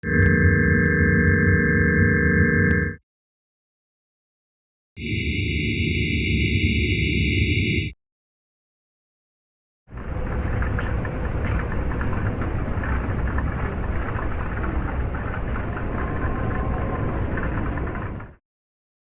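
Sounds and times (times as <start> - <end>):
deep rumbling crackling noise: 9.9 - 18.4.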